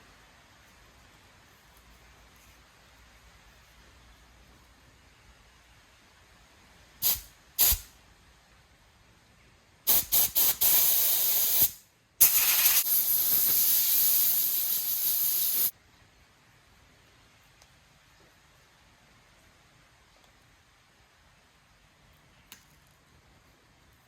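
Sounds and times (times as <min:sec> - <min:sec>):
compressed air blow gun hissing: 0:07.0 - 0:07.9, 0:09.9 - 0:15.7.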